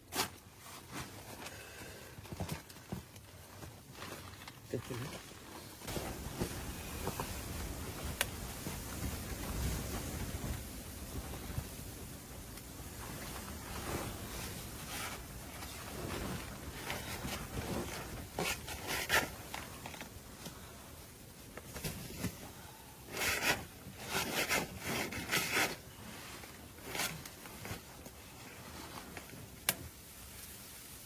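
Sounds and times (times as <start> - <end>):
rasping scraping rubs: 23.1 - 27.3.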